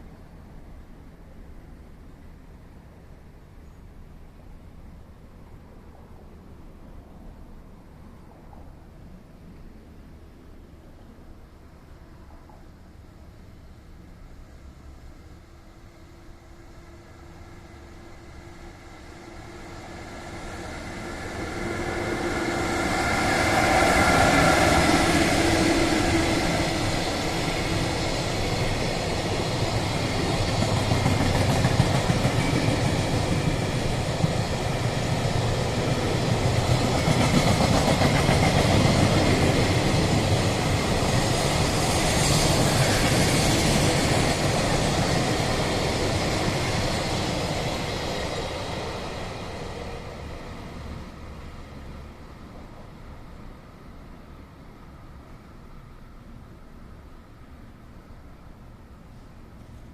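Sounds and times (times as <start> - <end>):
electric train passing: 4.1 - 59.9.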